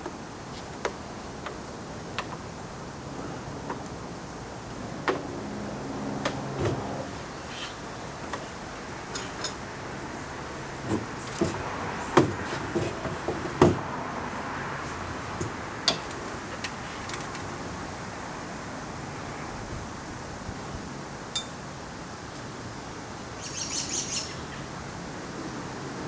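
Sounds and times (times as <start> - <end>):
steady background hiss: 14.2 - 26.0.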